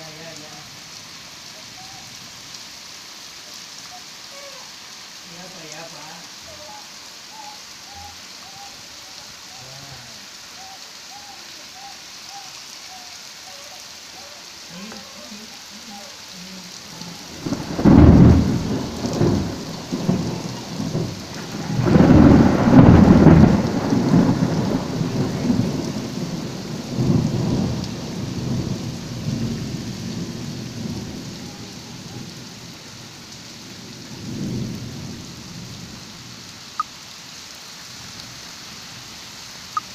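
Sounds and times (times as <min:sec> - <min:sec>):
steady rain: 0:00.0 - 0:39.9
thunder rolling: 0:17.2 - 0:31.8.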